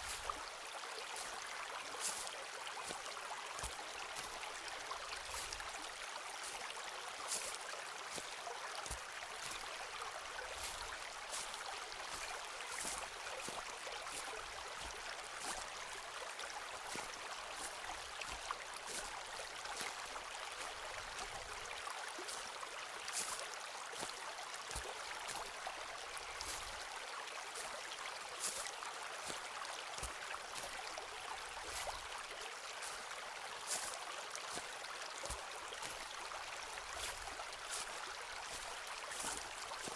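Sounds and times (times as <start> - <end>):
footsteps on forest floor: 0.0 - 0.5, 1.1 - 6.7, 7.3 - 9.7, 10.5 - 15.8, 16.8 - 20.0, 23.1 - 24.1, 24.7 - 25.5, 26.4 - 26.8, 28.4 - 29.4, 31.6 - 32.1, 32.8 - 39.9
stream rushing: 0.0 - 39.9.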